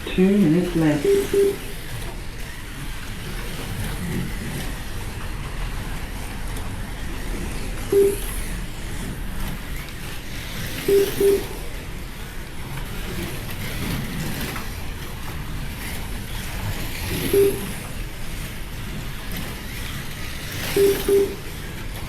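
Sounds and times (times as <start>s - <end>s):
slot cars whirring: 0.0s - 22.0s
short electronic beeps: 0.9s - 1.8s, 7.9s - 8.4s, 10.8s - 11.7s, 17.2s - 17.8s, 20.7s - 21.5s.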